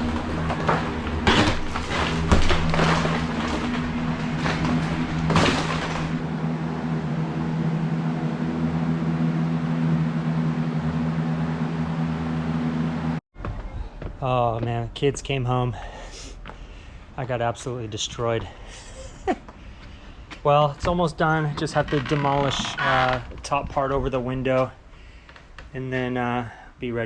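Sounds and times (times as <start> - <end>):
wall demolition knocks and crashes: 0.0 - 6.2
steady low hum: 0.0 - 26.8.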